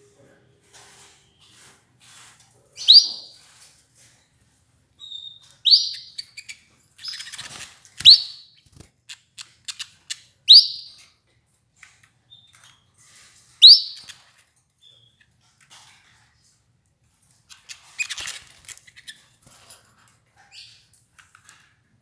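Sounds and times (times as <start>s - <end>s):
canaries giving rising call notes: 5.2s - 8.5s, 13.6s - 14.2s.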